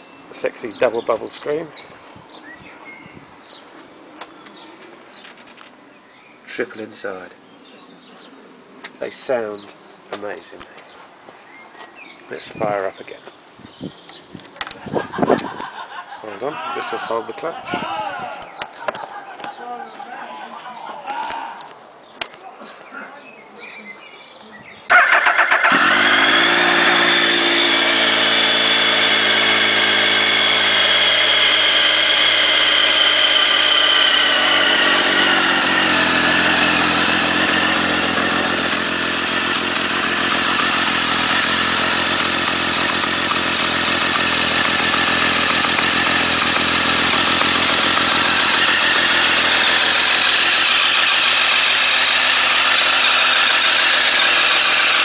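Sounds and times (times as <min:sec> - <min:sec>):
motorcycle engine starting and idling: 0:24.9 - 0:55.0.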